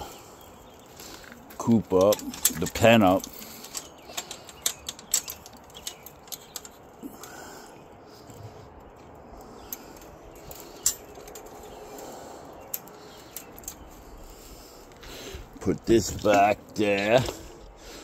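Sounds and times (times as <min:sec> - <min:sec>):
gate and locks clicking and rattling: 0:01.6 - 0:07.0, 0:09.6 - 0:14.0.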